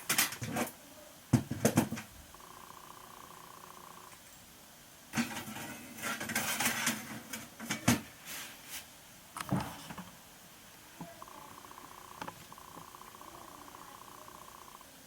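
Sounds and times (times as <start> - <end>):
hard objects clattering and rustling: 5.2 - 10.1.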